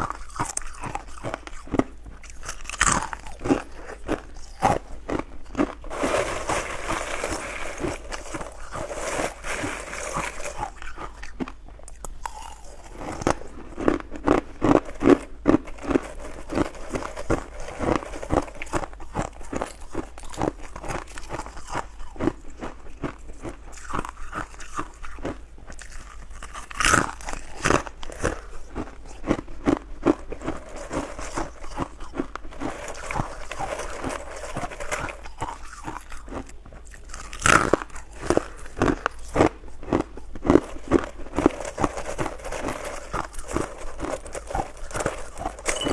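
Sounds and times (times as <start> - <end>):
ice crunching being chewed: 0.0 - 45.9
ice cracking loudly: 4.4 - 11.4.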